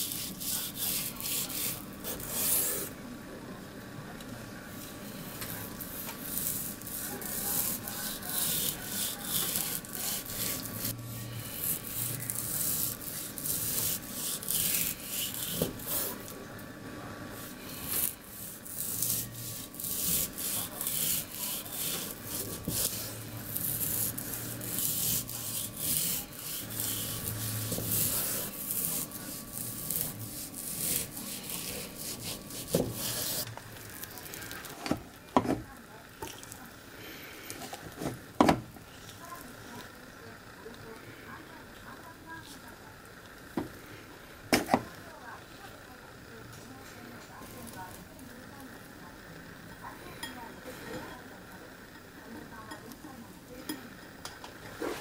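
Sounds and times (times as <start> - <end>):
knife sawing through meat: 0.0 - 2.9, 5.9 - 16.3, 17.4 - 33.5.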